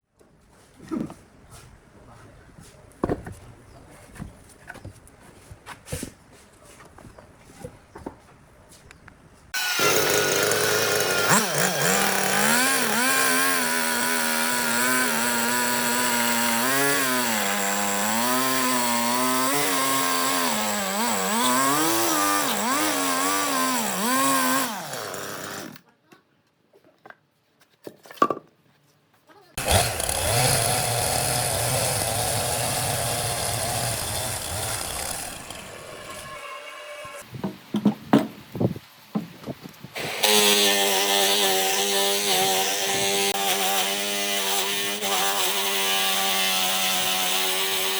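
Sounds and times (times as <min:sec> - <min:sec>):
chainsaw cutting wood: 0:09.6 - 0:25.8, 0:29.6 - 0:37.2, 0:40.0 - 0:47.9.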